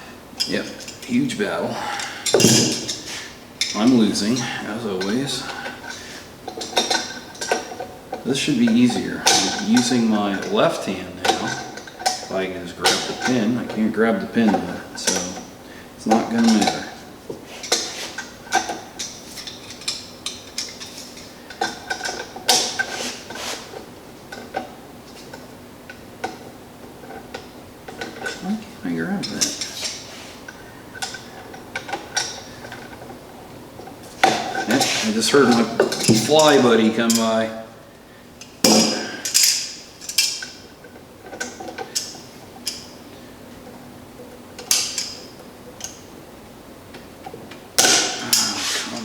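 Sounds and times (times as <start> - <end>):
metal parts and tools clinking: 1.9 - 7.8, 17.6 - 25.5, 29.2 - 33.2, 33.8 - 37.5, 38.4 - 43.0, 44.2 - 46.1, 47.8 - 49.0
metal clatter: 2.0 - 15.5, 47.2 - 49.0
hand tools clinking on metal pin: 38.4 - 40.6.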